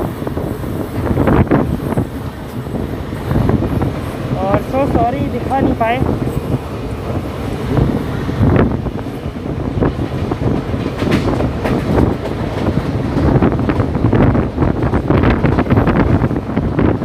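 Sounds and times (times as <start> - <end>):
train rumble: 0.0 - 17.0
wind buffeting microphone: 0.0 - 17.0
train wheels clattering: 8.8 - 16.3.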